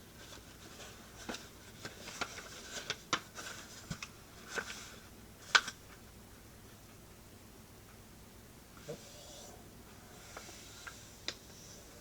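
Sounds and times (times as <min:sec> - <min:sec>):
paper folding crackles and rustles: 0:00.0 - 0:06.0.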